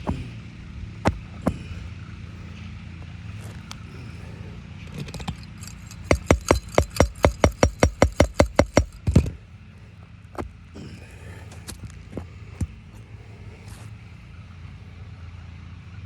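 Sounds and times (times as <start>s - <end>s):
steady low hum: 0.0s - 16.0s
ringing hammer blows on metal: 5.1s - 9.3s.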